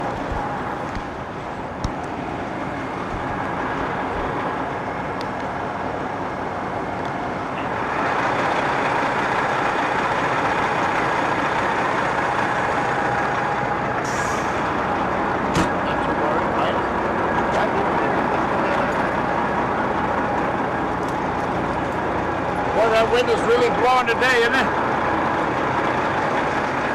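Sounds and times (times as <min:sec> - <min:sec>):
heavy diesel engine running: 0:00.0 - 0:26.9.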